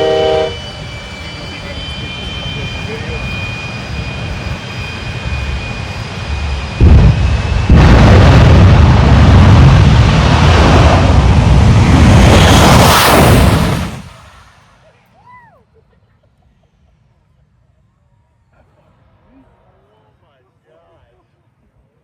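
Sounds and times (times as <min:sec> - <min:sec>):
low rumble: 0:00.5 - 0:14.9.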